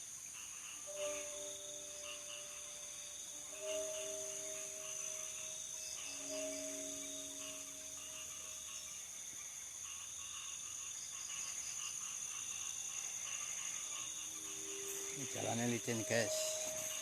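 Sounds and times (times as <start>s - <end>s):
crickets trilling: 0.0s - 17.0s
low sustained tones: 0.9s - 9.1s, 14.1s - 17.0s.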